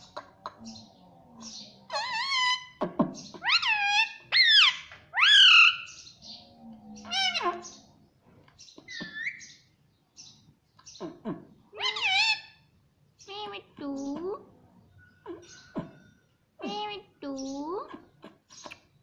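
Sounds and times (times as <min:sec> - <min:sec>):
parrot calling: 0:00.0 - 0:06.4, 0:07.0 - 0:07.9, 0:08.8 - 0:09.6, 0:10.9 - 0:13.6.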